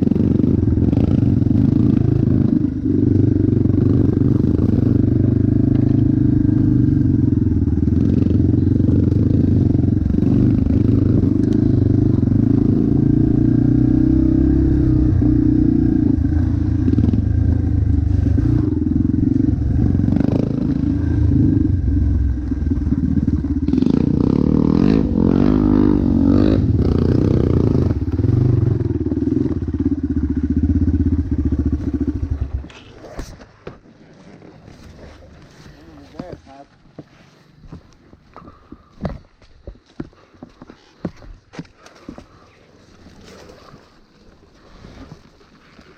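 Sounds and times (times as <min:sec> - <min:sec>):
motocross bike engine revving: 0:00.0 - 0:32.9.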